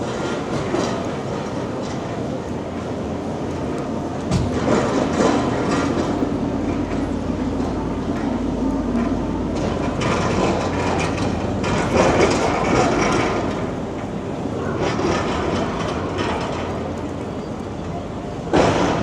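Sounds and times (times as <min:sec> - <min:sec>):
city street rumble: 0:00.0 - 0:19.0.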